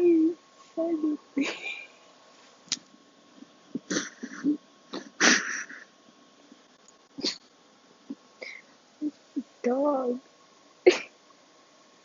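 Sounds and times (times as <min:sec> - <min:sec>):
person stifling laughter: 0:03.8 - 0:05.9.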